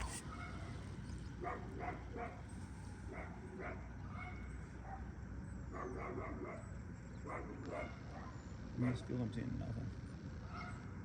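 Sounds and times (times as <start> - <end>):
dog barking: 1.4 - 2.4, 3.1 - 5.1, 5.7 - 8.4, 10.5 - 10.8.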